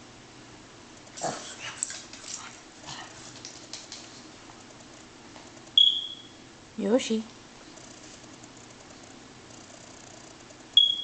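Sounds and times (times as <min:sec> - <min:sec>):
puppy scuffling and snuffling: 0:01.2 - 0:05.6.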